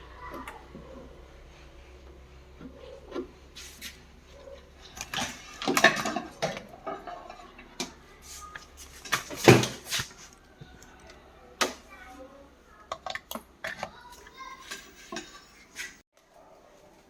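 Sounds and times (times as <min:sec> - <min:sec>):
hard objects knocking and clattering: 0:04.4 - 0:08.1, 0:08.8 - 0:11.0.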